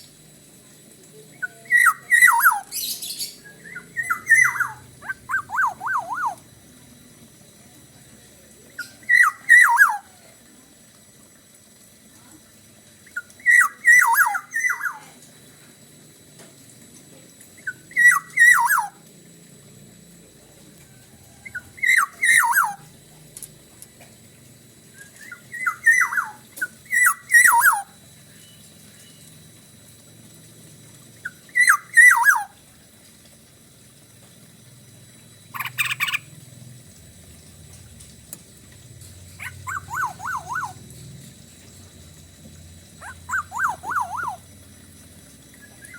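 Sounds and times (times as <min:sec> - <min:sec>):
harsh rasping bird call: 0:01.4 - 0:06.4, 0:39.4 - 0:40.8, 0:43.0 - 0:44.5
bird fluty whistles: 0:01.5 - 0:06.4, 0:08.8 - 0:10.1, 0:13.4 - 0:15.0, 0:17.7 - 0:19.0, 0:21.5 - 0:22.8, 0:25.0 - 0:29.2, 0:31.3 - 0:32.5, 0:39.4 - 0:40.8, 0:43.0 - 0:44.4.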